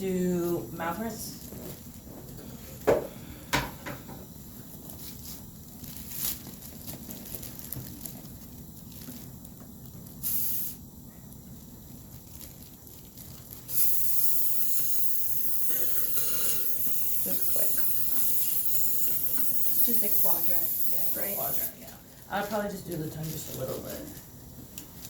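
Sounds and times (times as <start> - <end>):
dental syringe and suction hissing: 10.2 - 10.8, 13.7 - 21.8.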